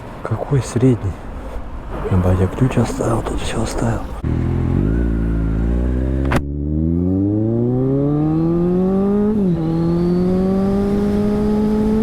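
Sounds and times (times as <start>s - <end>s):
motorcycle engine accelerating: 4.2s - 12.0s.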